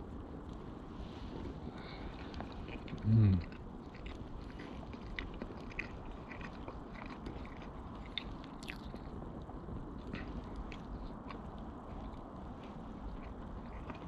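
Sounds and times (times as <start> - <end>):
person chewing food: 1.4 - 9.2, 10.0 - 14.0
low hum of voice: 2.8 - 3.6.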